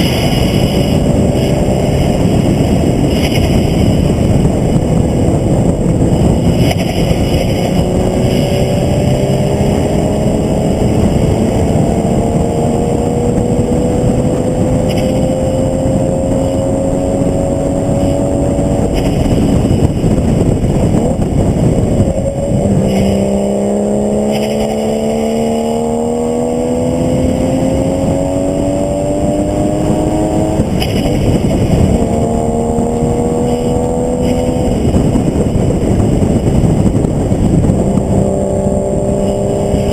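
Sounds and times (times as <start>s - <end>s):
race car engine accelerating: 0.0s - 39.9s
road noise: 0.0s - 39.9s
wind noise: 0.0s - 39.9s.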